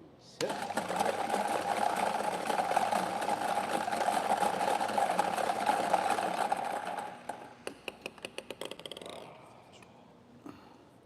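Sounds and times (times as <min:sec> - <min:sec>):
lottery draw machine running: 0:00.4 - 0:07.6.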